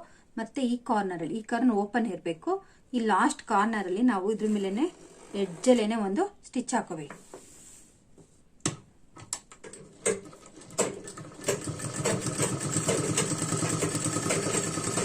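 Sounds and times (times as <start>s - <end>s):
sewing machine stitching: 4.3s - 6.1s, 9.6s - 15.0s.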